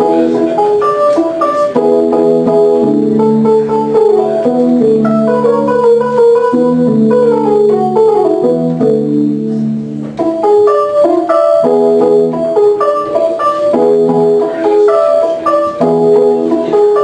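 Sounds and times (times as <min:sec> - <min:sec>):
electronic keyboard piano piece: 0:00.0 - 0:17.0.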